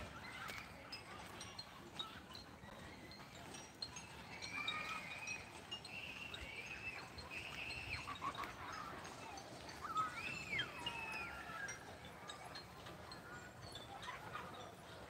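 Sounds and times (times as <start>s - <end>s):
outdoor background noise: 0.0s - 15.0s
birds calling: 4.0s - 13.4s.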